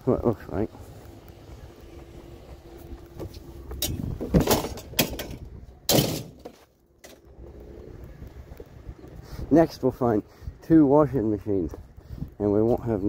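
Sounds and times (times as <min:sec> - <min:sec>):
faint steady hum: 0:00.0 - 0:13.0
objects knocking and clattering: 0:03.8 - 0:07.2.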